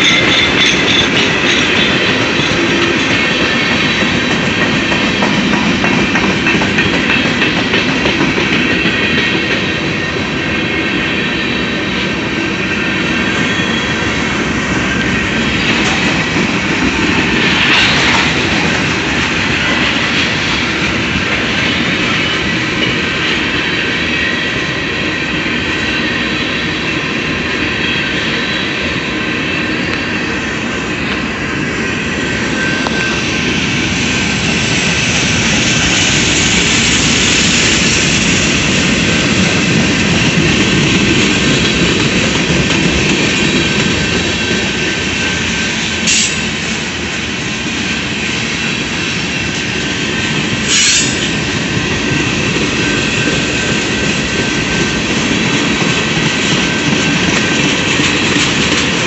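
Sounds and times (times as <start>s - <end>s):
steel wheels rolling on rail: 0.0s - 59.0s.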